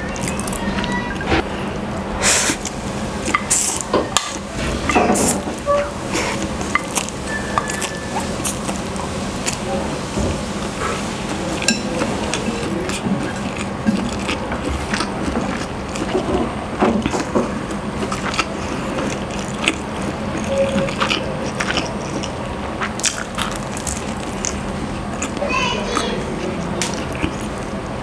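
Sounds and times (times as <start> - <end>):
person chewing and smacking: 0.0 - 1.0, 6.2 - 9.6, 11.6 - 27.8.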